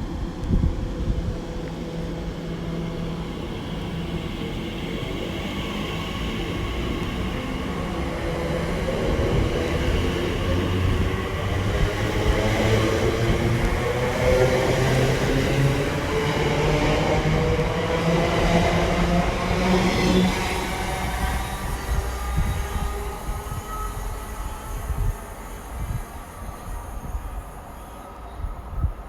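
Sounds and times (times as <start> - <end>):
electric train humming: 0.0 - 29.0.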